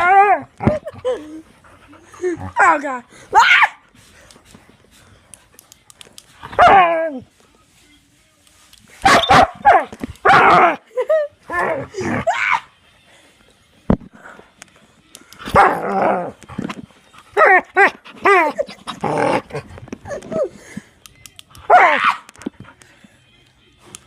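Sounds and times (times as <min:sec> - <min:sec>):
dog barking and yelping: 0:02.3 - 0:03.8, 0:06.4 - 0:07.2, 0:09.0 - 0:10.8, 0:15.4 - 0:16.4, 0:17.3 - 0:20.5, 0:21.7 - 0:22.4
sharp click: 0:21.0 - 0:21.7.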